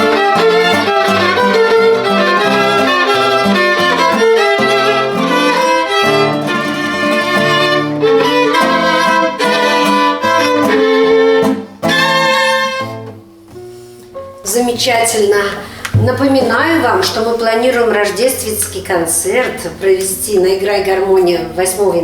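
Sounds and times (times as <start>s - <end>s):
violin melody: 0.0s - 13.2s, 15.2s - 20.6s
bass accompaniment: 14.0s - 22.0s.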